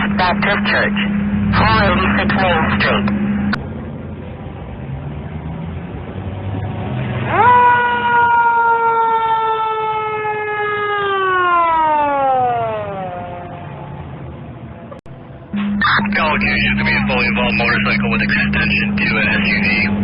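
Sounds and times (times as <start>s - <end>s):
low traffic rumble: 0.0s - 20.0s
fire engine siren: 7.1s - 20.0s.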